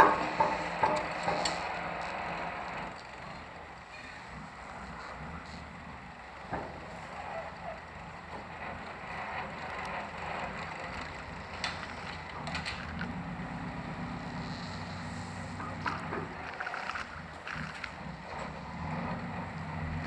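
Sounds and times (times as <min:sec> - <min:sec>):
sharp clanks and creaks: 0:00.0 - 0:05.7, 0:06.4 - 0:20.0
boat engine running: 0:00.0 - 0:20.0.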